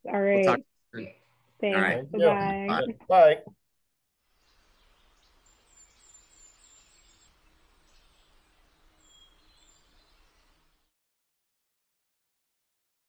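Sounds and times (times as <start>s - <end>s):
faint outdoor ambience: 0.1s - 3.5s
small bird chirping: 4.4s - 10.8s.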